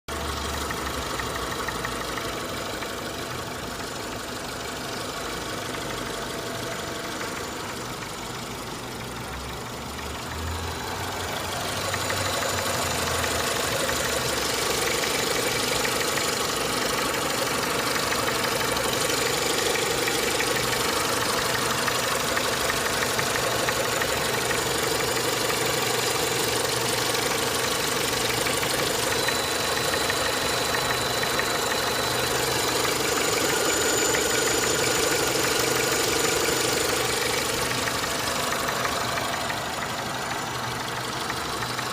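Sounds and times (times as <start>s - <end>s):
petrol engine knocking: 0.1s - 41.9s.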